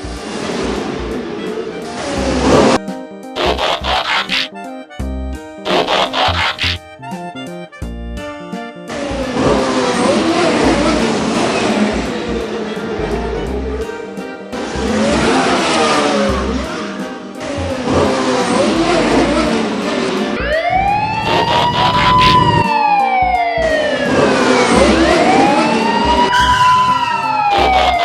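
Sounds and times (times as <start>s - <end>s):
siren wailing: 20.4s - 28.0s.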